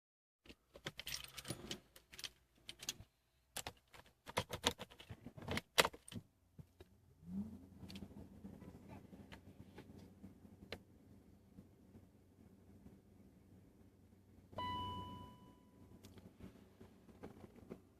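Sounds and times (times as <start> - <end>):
car keys jangling: 0.5 - 3.0.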